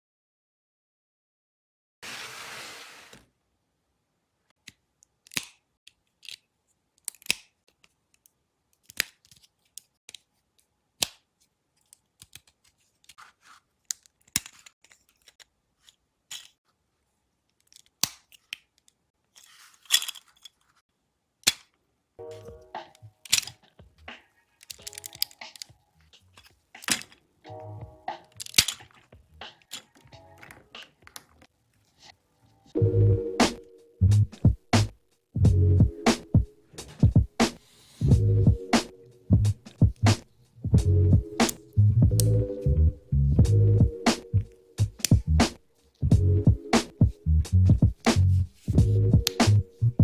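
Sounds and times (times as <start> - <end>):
plastic bricks clicking together: 28.2 - 31.5
music with pitched pattern: 32.8 - 37.3, 38.0 - 40.0, 40.7 - 50.0.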